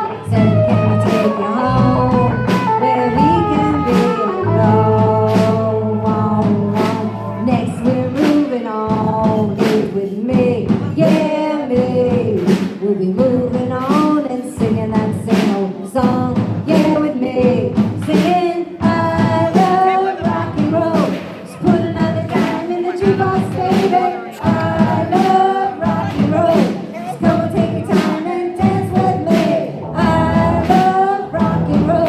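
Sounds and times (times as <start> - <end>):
bass guitar: 0.0 - 8.3, 18.8 - 25.2, 28.6 - 32.0
electric guitar: 0.0 - 9.4
steady drum beat: 0.0 - 32.0.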